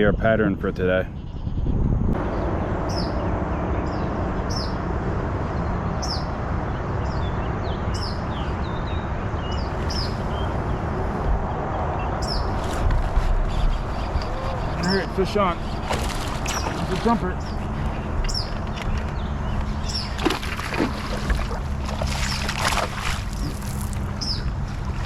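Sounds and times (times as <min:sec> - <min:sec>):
bird chirping: 0:01.0 - 0:04.9, 0:05.6 - 0:22.6, 0:23.2 - 0:24.8
rushing background noise: 0:01.1 - 0:25.0.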